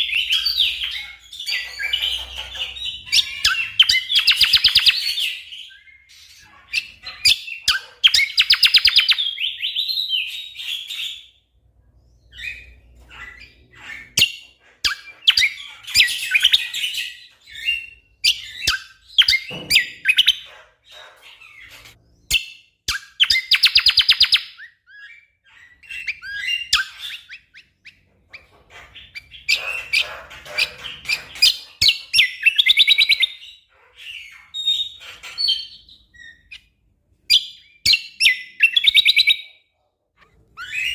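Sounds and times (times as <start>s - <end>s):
songbird trills and chirps: 0.0s - 11.3s.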